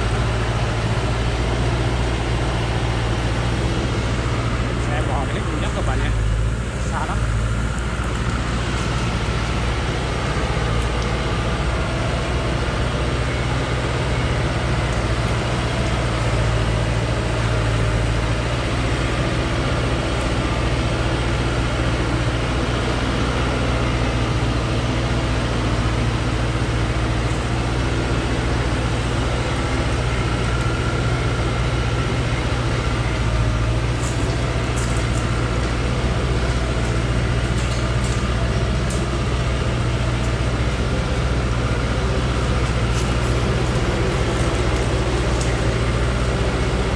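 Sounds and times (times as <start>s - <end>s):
truck engine running: 0.0s - 46.9s.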